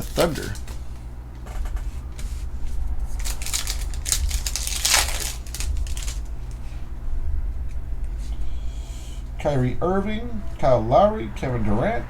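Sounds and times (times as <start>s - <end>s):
card wrapper crinkling: 0.0s - 0.8s, 2.1s - 6.7s
low hum: 0.0s - 12.0s.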